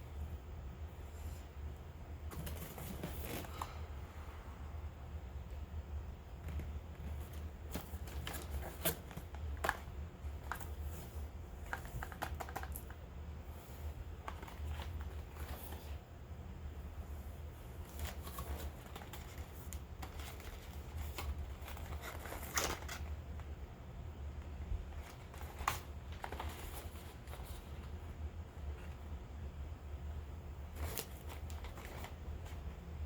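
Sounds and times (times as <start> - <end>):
low steady hum: 0.0 - 33.0
packaging rustling: 6.5 - 13.0, 14.2 - 16.0, 17.8 - 23.2, 24.9 - 28.0, 30.7 - 32.8.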